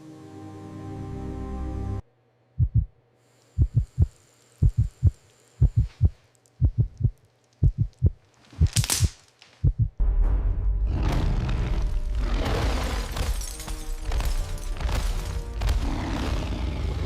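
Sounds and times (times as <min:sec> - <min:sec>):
heartbeat thuds: 0:02.6 - 0:02.9, 0:03.6 - 0:08.8, 0:09.6 - 0:10.0.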